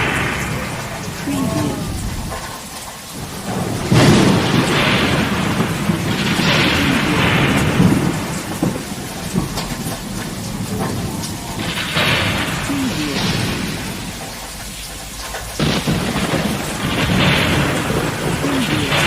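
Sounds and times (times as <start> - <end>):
heavy rain pouring: 0.0 - 19.0
low rumble: 1.5 - 2.6.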